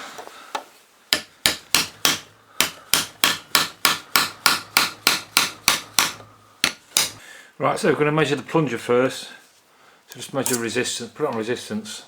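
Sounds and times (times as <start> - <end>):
small hammer tapping on metal: 1.2 - 7.2.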